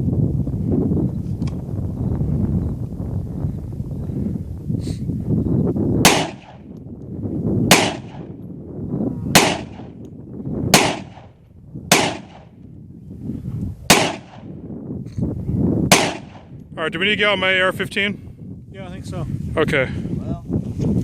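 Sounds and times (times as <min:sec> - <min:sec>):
low wind rumble: 0:00.0 - 0:21.0
rifle shots with echo: 0:06.0 - 0:06.7, 0:07.7 - 0:08.4, 0:09.3 - 0:10.0, 0:10.7 - 0:12.6, 0:13.9 - 0:14.6, 0:15.9 - 0:16.5.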